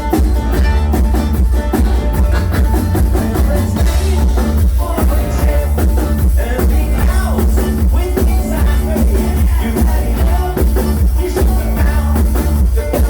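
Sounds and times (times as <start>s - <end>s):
driving drum beat: 0.0s - 13.0s
heavy bass line: 0.0s - 13.0s
live band playing: 0.0s - 13.0s.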